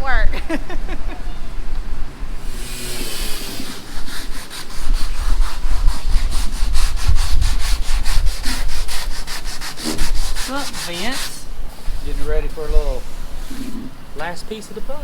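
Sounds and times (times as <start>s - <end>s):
hand tool scraping strokes: 2.4s - 14.0s.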